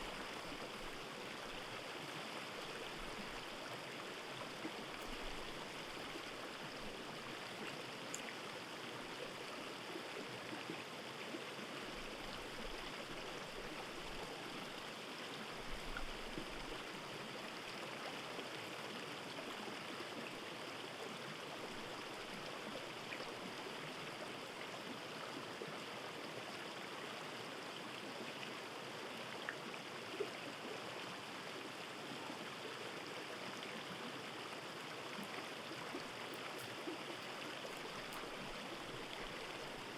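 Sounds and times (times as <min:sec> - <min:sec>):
stream water rushing: 0:00.0 - 0:39.9
faint clicks: 0:04.9 - 0:06.1, 0:36.2 - 0:39.7.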